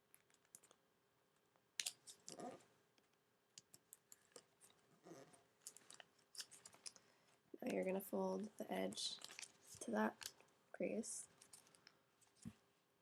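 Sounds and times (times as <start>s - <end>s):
paper crinkling and creasing: 4.1s - 7.0s, 7.6s - 10.5s, 11.2s - 12.5s.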